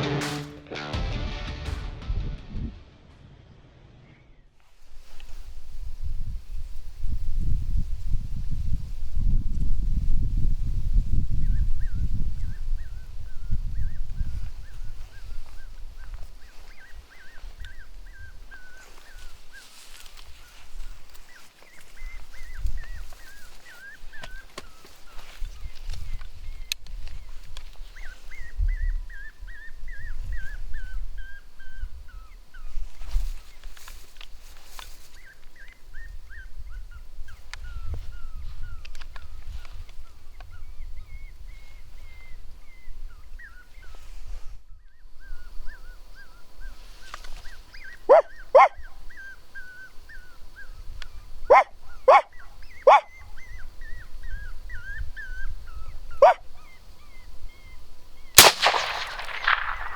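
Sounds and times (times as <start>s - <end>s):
coyote yips: 47.7s - 57.6s
coyote whining: 47.8s - 57.6s.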